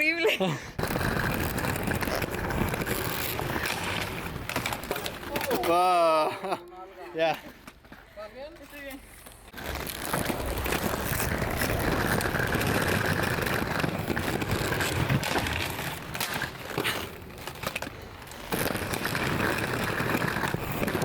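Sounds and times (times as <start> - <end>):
rolling on pavement: 0.0 - 21.0.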